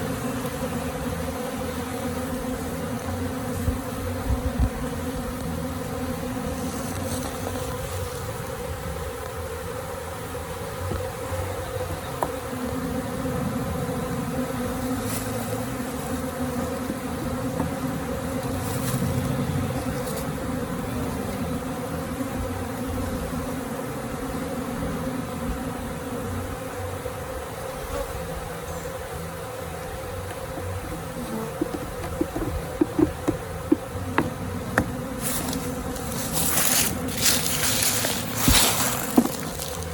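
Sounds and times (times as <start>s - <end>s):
bee swarm buzzing: 0.0s - 39.9s.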